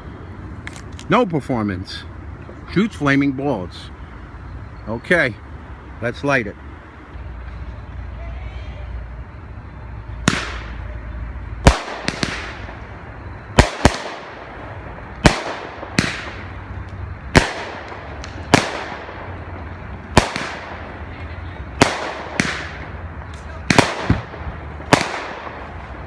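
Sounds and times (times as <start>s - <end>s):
firework comet shots banging: 10.2s - 10.9s, 11.6s - 26.0s.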